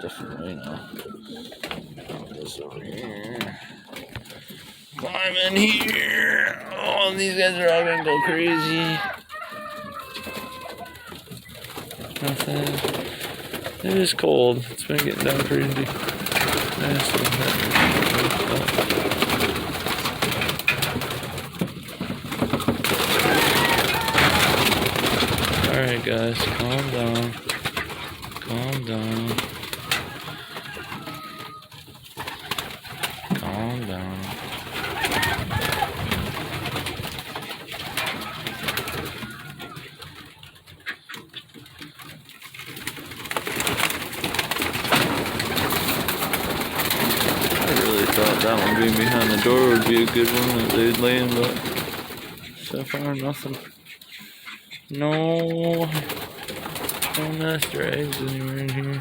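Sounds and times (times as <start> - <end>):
wings fluttering: 0.0 - 54.9, 55.6 - 59.0
pigeons cooing: 0.0 - 59.0.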